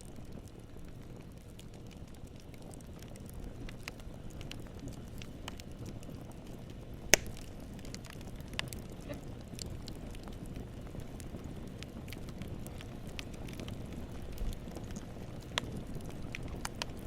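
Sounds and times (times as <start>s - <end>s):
campfire crackling: 0.0s - 17.0s
low rush of burning: 0.0s - 17.0s
sharp loud pop: 7.2s - 7.4s.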